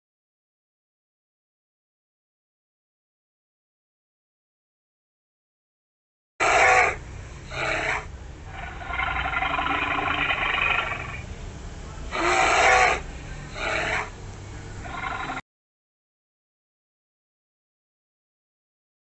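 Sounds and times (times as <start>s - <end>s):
polar bear calling: 6.4s - 11.2s, 12.1s - 14.2s, 14.8s - 15.4s.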